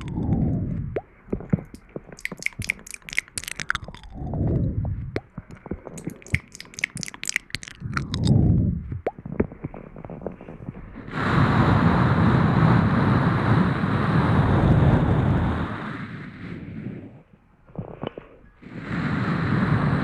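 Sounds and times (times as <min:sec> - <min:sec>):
soft crackles: 0:00.0 - 0:11.6, 0:16.8 - 0:19.2
rushing noise on microphone: 0:00.0 - 0:20.0.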